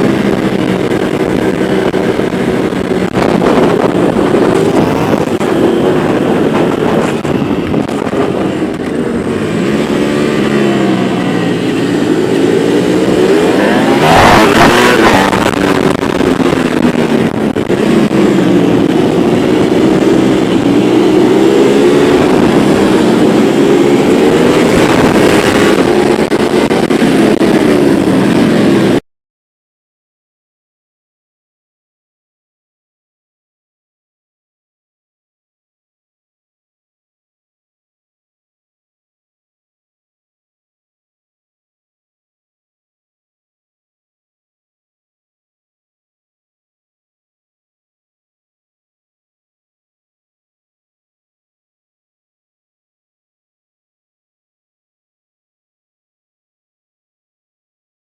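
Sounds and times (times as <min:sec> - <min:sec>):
motorcycle engines passing: 0:00.0 - 0:29.0.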